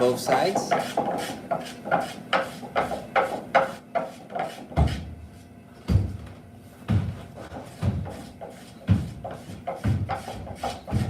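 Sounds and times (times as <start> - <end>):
hand tool working wood: 0.0 - 5.1, 6.9 - 11.0
deep thumps: 5.9 - 8.2.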